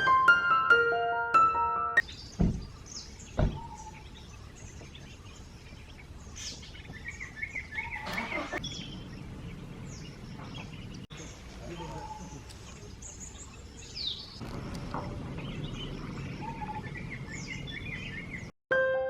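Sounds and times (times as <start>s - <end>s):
piano music: 0.0s - 2.0s, 18.7s - 19.0s
birds chirping and calling: 2.0s - 18.5s
dull thumps: 2.3s - 3.8s.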